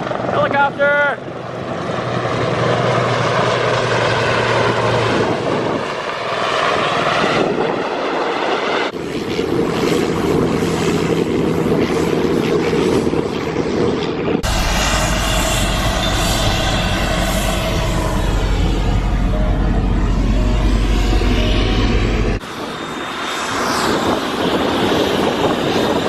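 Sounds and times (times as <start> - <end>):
helicopter turbine and rotor: 0.0 - 26.0.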